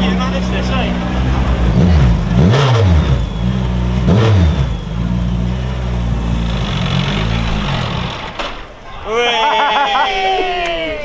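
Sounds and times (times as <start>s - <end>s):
engine revving: 0.0s - 8.6s.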